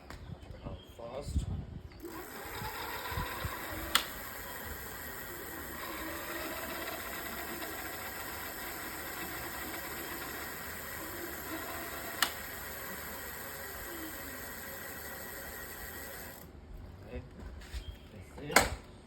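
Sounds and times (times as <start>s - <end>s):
electric bike motor humming: 2.0s - 16.6s.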